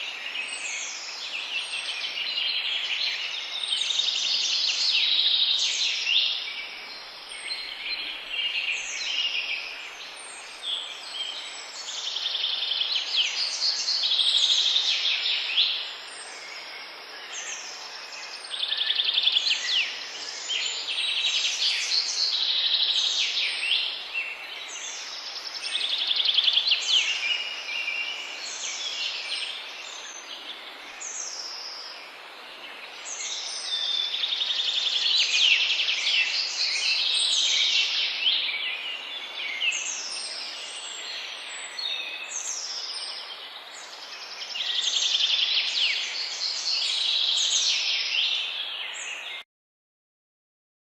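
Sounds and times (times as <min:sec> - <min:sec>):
faint background hiss: 0:00.0 - 0:49.2
songbirds singing: 0:00.0 - 0:49.4.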